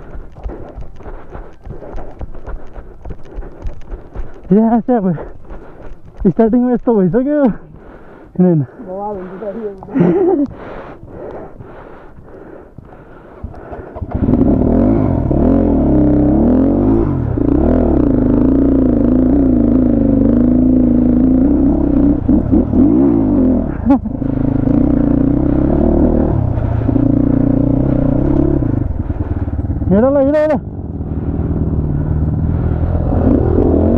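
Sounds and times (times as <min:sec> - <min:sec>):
motorcycle engine revving: 0:13.6 - 0:33.9.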